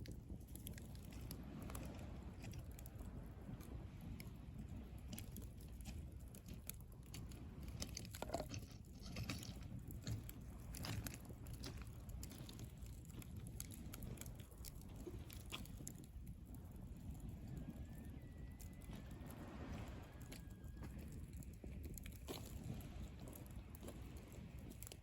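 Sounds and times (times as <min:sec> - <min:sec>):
fire pops and snaps: 0:00.0 - 0:17.6, 0:19.1 - 0:25.0
campfire crackling: 0:00.0 - 0:25.0.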